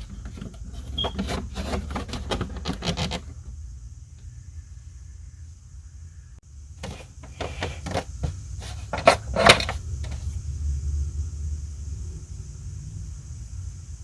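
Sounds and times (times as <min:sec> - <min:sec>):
plastic parts clicking and knocking: 0:00.0 - 0:03.4, 0:06.8 - 0:10.2
low steady hum: 0:00.0 - 0:14.0.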